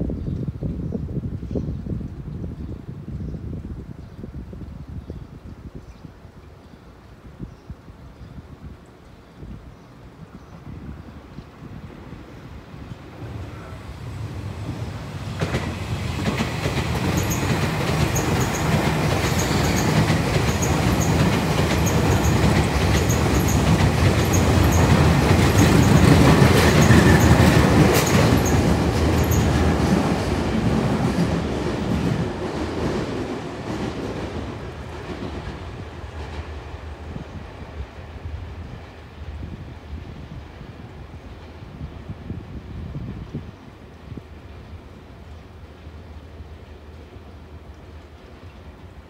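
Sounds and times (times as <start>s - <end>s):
electric train passing: 11.6s - 41.9s
wheels clicking over rail joints: 15.4s - 32.0s.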